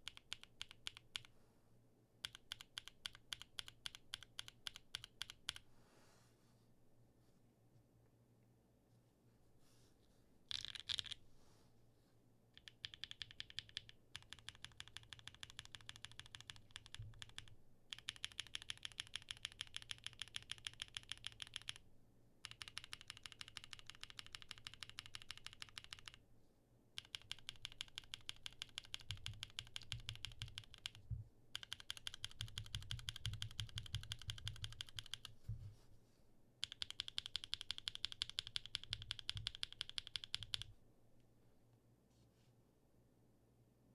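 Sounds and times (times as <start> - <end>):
mechanical keyboard typing: 0.0 - 1.3, 2.2 - 5.6, 10.5 - 11.2, 12.6 - 21.8, 22.4 - 26.2, 27.0 - 35.4, 36.6 - 40.7.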